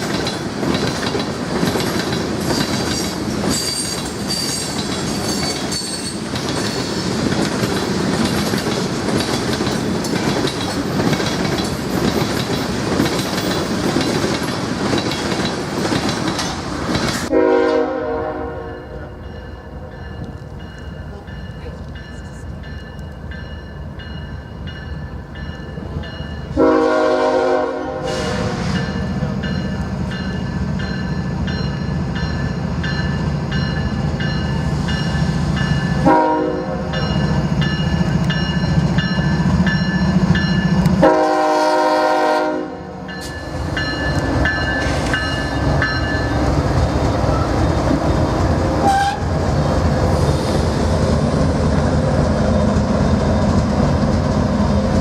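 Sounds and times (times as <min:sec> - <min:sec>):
train rumble: 0:00.0 - 0:55.0
train horn blasts: 0:17.3 - 0:19.2, 0:26.5 - 0:29.0, 0:36.0 - 0:37.0, 0:40.9 - 0:43.1, 0:48.8 - 0:49.3.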